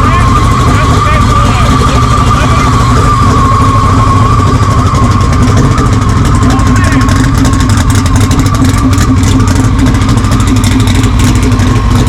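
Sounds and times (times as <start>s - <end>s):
rough vehicle engine running: 0.0s - 12.0s.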